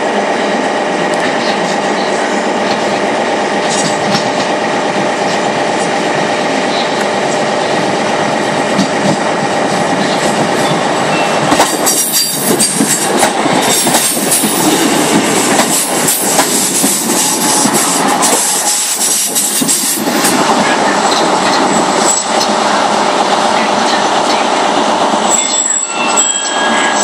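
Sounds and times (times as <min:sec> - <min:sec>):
train wheels squealing: 0:10.6 - 0:13.1, 0:25.3 - 0:27.0.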